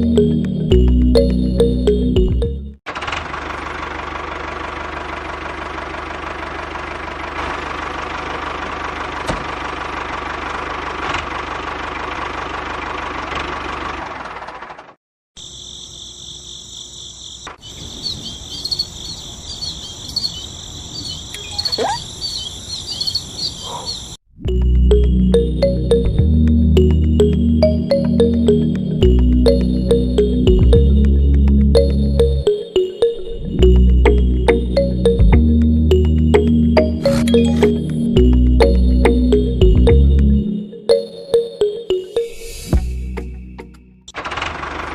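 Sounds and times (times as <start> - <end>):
insects chirping: 15.4 - 24.2.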